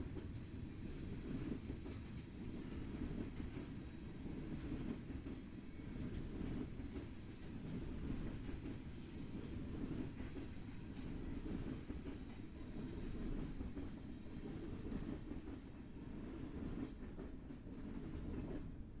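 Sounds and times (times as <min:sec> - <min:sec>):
train rumbling along rails: 0:00.0 - 0:19.0.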